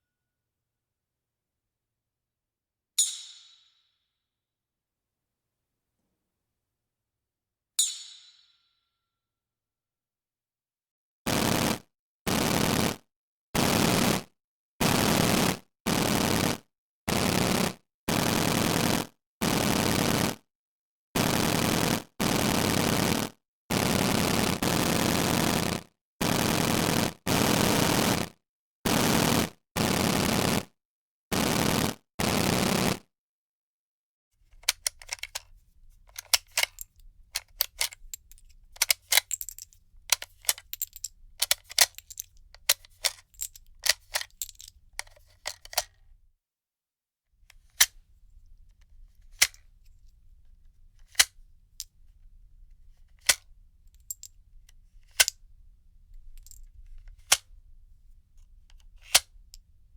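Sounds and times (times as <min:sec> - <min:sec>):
sharp irregular clicks: 0:34.6 - 0:46.0, 0:56.3 - 0:57.5.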